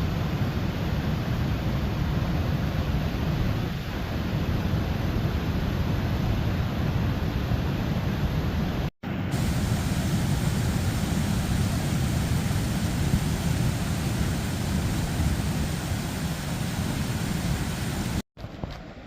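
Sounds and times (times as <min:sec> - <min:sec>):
waterfall rushing: 0:09.3 - 0:18.2.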